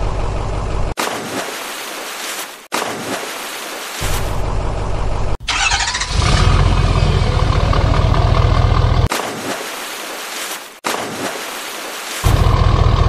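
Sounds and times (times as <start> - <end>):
loud engine rumble: 0.0 - 1.0, 4.2 - 9.1, 12.3 - 13.0
truck engine idling: 0.0 - 1.0, 4.2 - 9.1, 12.3 - 13.0.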